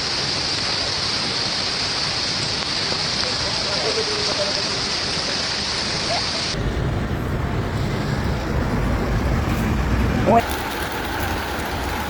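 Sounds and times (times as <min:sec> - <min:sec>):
heavy rain hissing: 0:00.0 - 0:12.0
wind buffeting microphone: 0:05.8 - 0:12.0.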